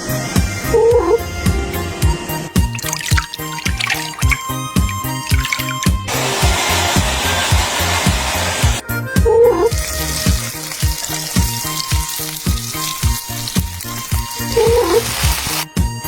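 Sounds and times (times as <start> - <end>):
food sizzling in a pan: 9.7 - 15.6.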